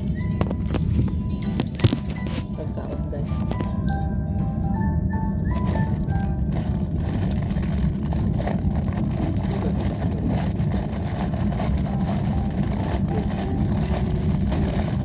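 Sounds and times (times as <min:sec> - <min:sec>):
train rumbling inside passenger car: 0:00.0 - 0:15.0.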